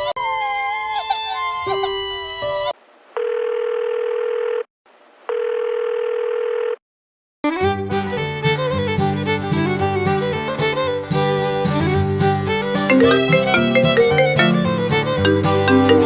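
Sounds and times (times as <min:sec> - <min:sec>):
fiddle music: 0:00.0 - 0:02.7, 0:07.4 - 0:16.0
telephone ringback tone: 0:12.9 - 0:16.0.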